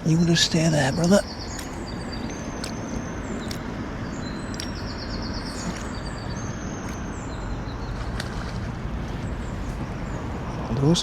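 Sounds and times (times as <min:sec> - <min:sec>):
small bird chirping: 0:00.0 - 0:08.3
low river rumble: 0:00.0 - 0:11.0.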